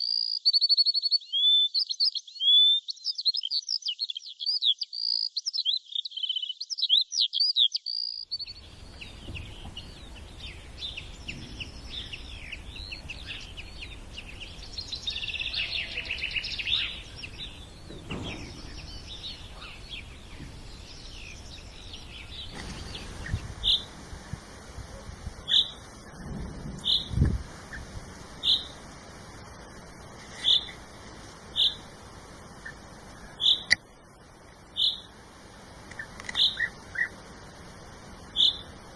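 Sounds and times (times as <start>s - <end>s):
birds chirping in high trills: 0.0s - 38.9s.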